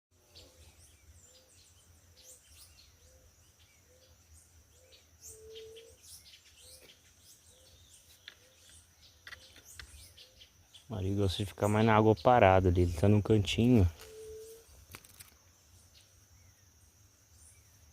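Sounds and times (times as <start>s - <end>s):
birds chirping: 0.2s - 17.9s
faint steady high tone: 13.5s - 14.8s.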